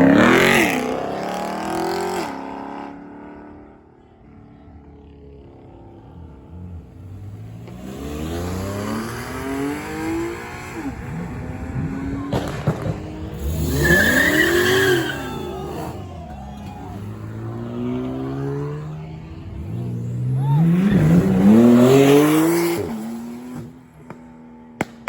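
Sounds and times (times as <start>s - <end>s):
car engine revving: 0.0s - 3.9s, 4.6s - 25.0s
tire squeal: 8.1s - 18.9s, 19.6s - 23.7s
sharp cracks: 12.3s - 14.6s, 24.0s - 25.0s.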